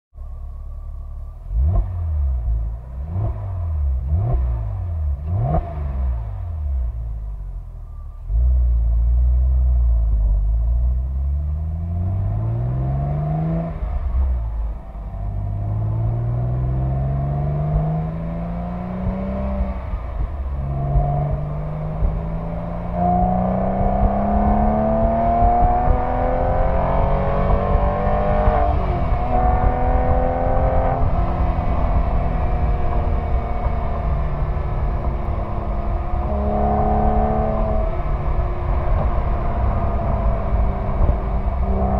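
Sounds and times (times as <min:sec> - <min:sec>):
car engine accelerating through gears: 0:00.3 - 0:41.9.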